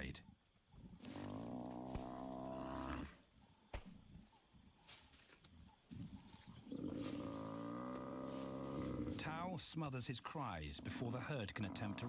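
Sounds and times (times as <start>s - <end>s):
buffalo bellowing: 6.7s - 9.3s.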